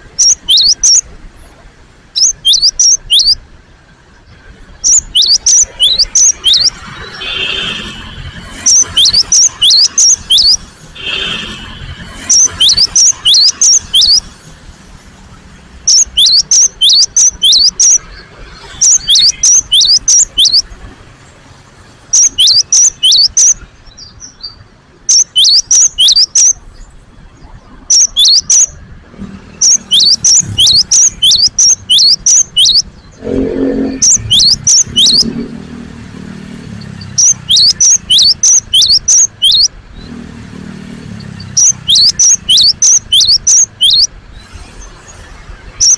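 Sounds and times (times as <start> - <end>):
tit chirping in bursts: 0.0 - 1.1, 2.2 - 3.4, 4.8 - 7.2, 8.4 - 10.8, 12.1 - 14.4, 15.8 - 20.8, 22.0 - 24.4, 25.0 - 26.6, 27.8 - 28.8, 29.6 - 35.4, 36.8 - 39.8, 41.2 - 44.2, 45.7 - 45.9.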